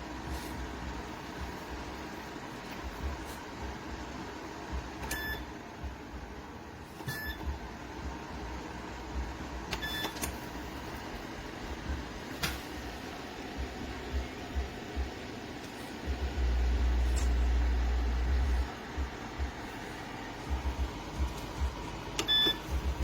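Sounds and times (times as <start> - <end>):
heater fan hissing: 0.0 - 23.0
short high beeps: 22.2 - 22.7.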